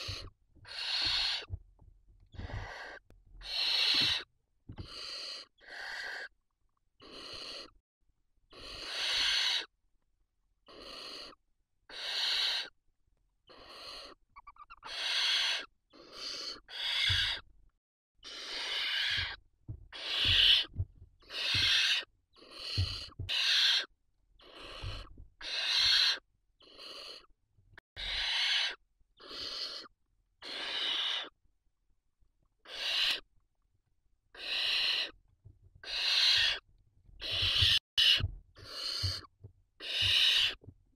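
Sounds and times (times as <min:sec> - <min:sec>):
owl chicks hissing calls: 0:00.0 - 0:01.5, 0:02.4 - 0:06.3, 0:07.0 - 0:07.8, 0:08.5 - 0:09.7, 0:10.7 - 0:12.8, 0:13.5 - 0:17.4, 0:18.2 - 0:27.3, 0:28.0 - 0:31.4, 0:32.6 - 0:33.3, 0:34.4 - 0:35.2, 0:35.8 - 0:36.6, 0:37.2 - 0:40.6.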